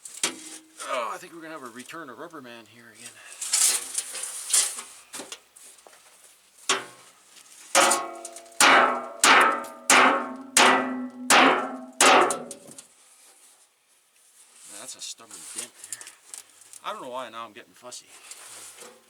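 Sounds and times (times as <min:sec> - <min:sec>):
hammer striking metal fender: 0:07.8 - 0:12.8.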